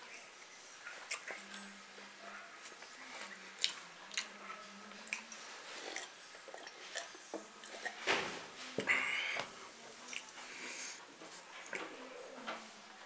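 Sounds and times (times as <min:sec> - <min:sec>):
chewing and biting food: 0:02.6 - 0:04.4.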